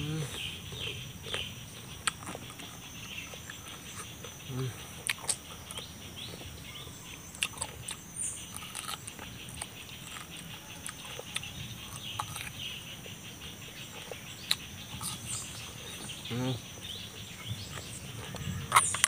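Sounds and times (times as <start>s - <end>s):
chewing crunchy papaya: 0.0s - 19.0s
wet mouth clicks: 5.0s - 5.9s.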